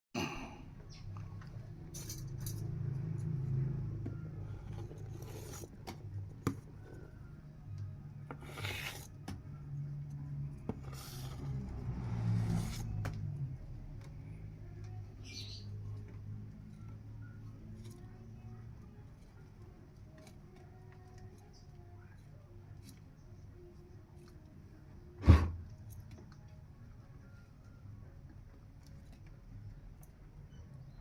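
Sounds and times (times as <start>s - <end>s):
scraping and rubbing in container: 4.4s - 7.2s, 8.3s - 9.3s, 10.6s - 13.0s.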